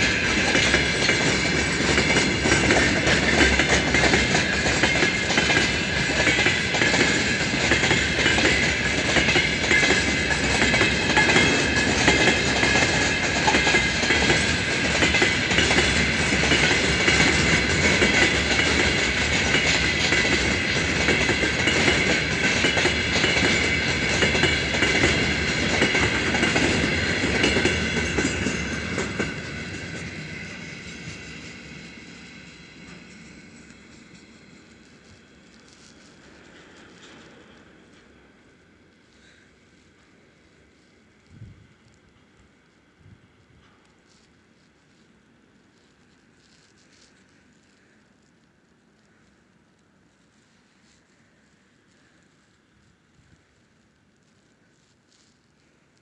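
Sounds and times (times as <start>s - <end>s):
clickety-clack over rail joints: 0.0s - 38.3s
freight train wheels rumbling: 0.0s - 44.3s.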